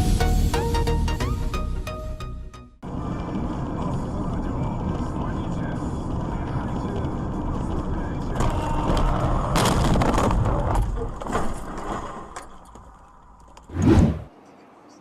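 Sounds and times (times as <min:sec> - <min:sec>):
car road rumble: 0:02.8 - 0:11.3.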